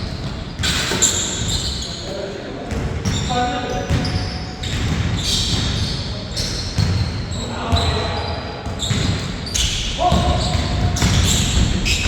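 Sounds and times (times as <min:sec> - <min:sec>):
basketball bouncing on a court: 0:02.7 - 0:12.0.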